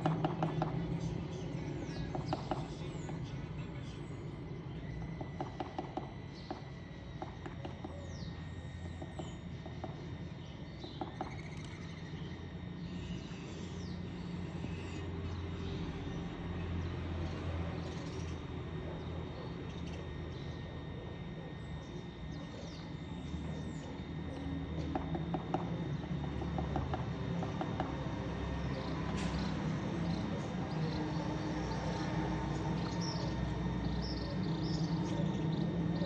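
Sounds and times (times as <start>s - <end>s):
birds chirping: 0.0s - 36.0s
steady low hum: 0.0s - 36.0s.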